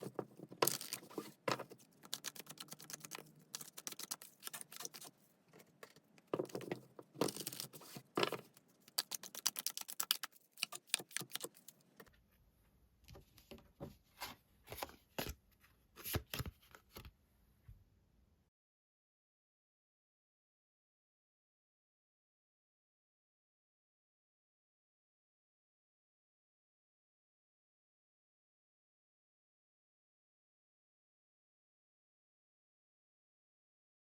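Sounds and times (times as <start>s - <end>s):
cards being shuffled: 0.0s - 11.8s, 16.0s - 17.1s.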